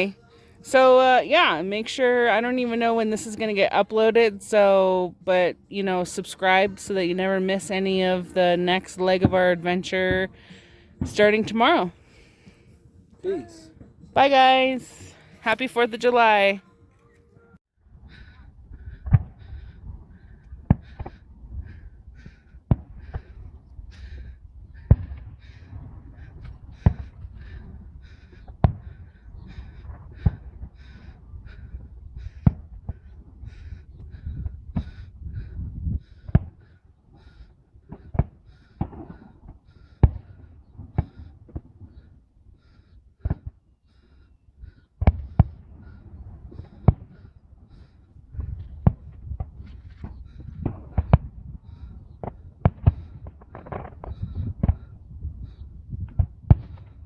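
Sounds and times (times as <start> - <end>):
distant fireworks bangs: 48.4 - 51.4, 52.1 - 55.0, 56.1 - 57.0.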